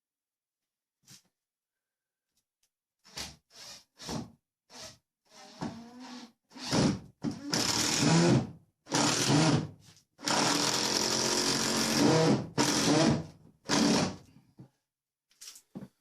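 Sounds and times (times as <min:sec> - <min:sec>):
power drill running: 0:07.5 - 0:09.6, 0:10.2 - 0:14.2.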